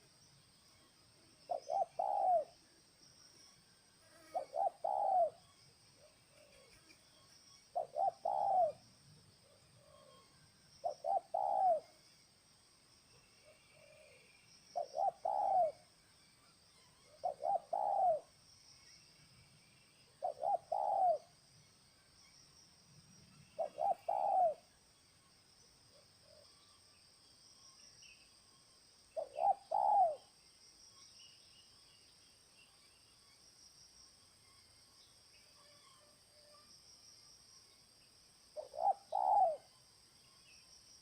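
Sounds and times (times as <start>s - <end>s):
high insect drone: 0.0s - 41.0s
dove cooing: 1.5s - 2.5s, 4.3s - 5.4s, 7.7s - 8.8s, 10.8s - 11.9s, 13.4s - 15.8s, 17.1s - 18.3s, 20.2s - 21.3s, 23.6s - 24.6s, 29.2s - 30.3s, 38.6s - 39.7s.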